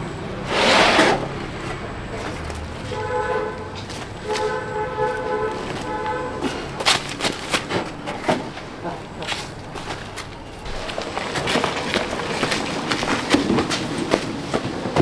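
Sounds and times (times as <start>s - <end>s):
horn blasts: 2.8s - 6.8s.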